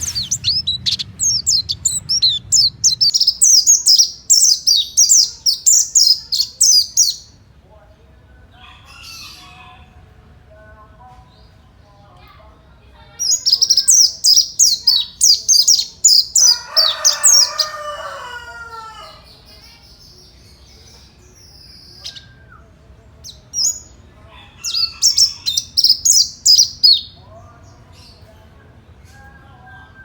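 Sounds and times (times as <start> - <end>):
bird singing high chirps: 0.0 - 7.3, 13.2 - 18.2, 19.5 - 24.0, 24.6 - 27.2.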